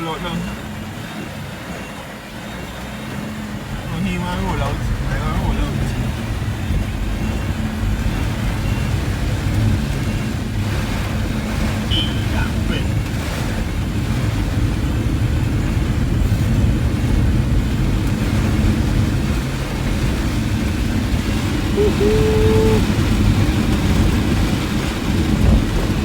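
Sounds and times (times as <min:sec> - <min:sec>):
car engine and road noise: 0:00.0 - 0:26.0
rain on car: 0:00.0 - 0:26.0
single electronic tone: 0:11.9 - 0:12.4.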